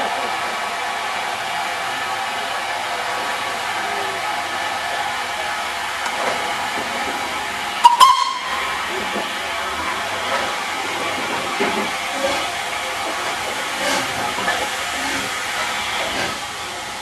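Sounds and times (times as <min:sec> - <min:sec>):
steam locomotive hissing: 0:00.0 - 0:17.0
steam whistle toot: 0:07.7 - 0:16.4.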